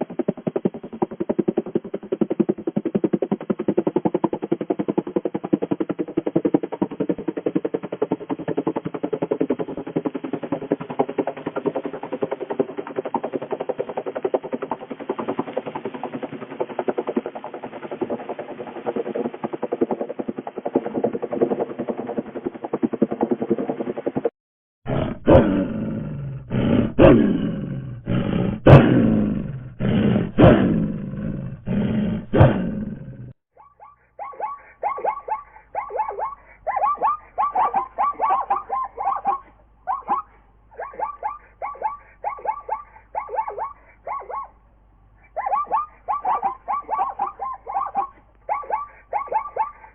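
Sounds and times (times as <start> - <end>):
rapid rattling pulse: 0.0 - 49.9
tiger roaring: 24.9 - 33.3, 34.4 - 44.5, 45.2 - 49.9.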